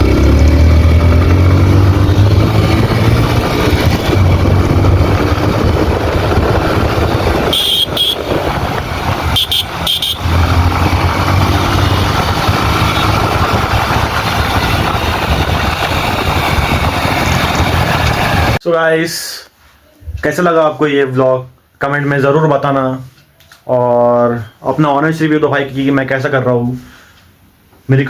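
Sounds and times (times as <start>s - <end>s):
motorcycle engine running: 0.0s - 18.6s
wind rushing over microphone: 0.0s - 18.6s
horn beeping: 7.3s - 13.5s.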